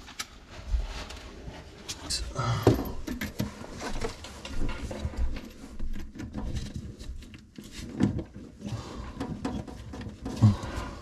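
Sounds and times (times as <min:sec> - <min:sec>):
tools and plumbing parts clattering: 0:02.4 - 0:11.0.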